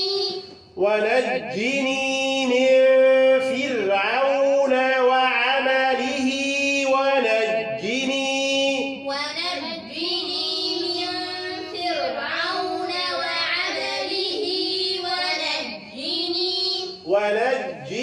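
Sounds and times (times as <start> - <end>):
teacher reciting: 0.0 - 18.0
children reciting in chorus: 1.3 - 18.0.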